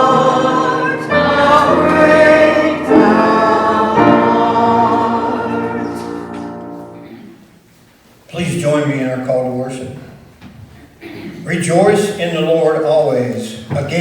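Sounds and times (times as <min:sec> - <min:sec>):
congregation singing a hymn: 0:00.0 - 0:07.6.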